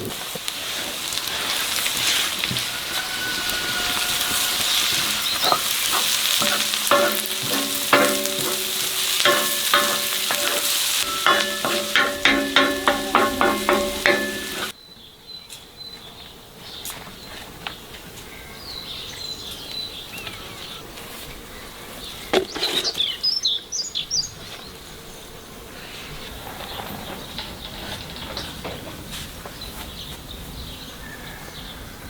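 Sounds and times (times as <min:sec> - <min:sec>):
steady background hiss: 0:00.0 - 0:15.8
birds chirping: 0:01.2 - 0:17.8, 0:18.4 - 0:31.8.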